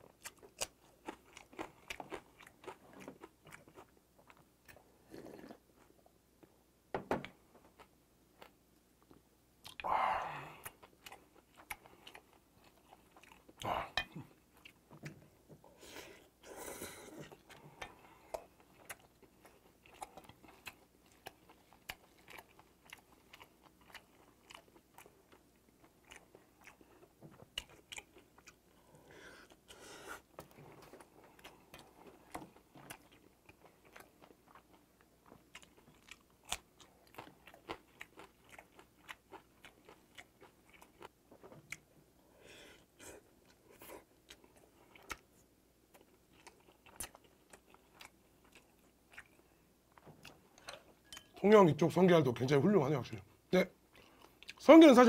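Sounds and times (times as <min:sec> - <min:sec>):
breath noises: 0:28.7 - 0:30.4.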